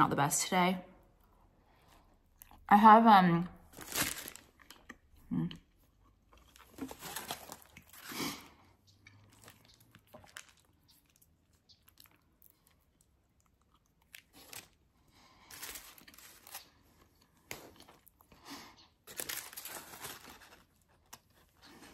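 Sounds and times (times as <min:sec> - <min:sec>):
person chewing: 0:03.9 - 0:19.1.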